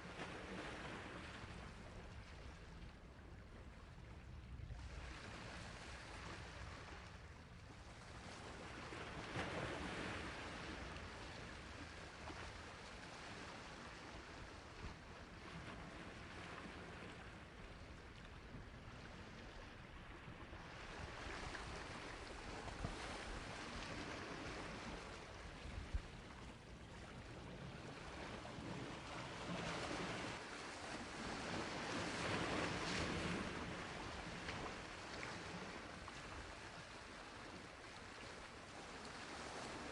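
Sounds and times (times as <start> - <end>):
sea waves washing on shore: 7.9 - 39.9.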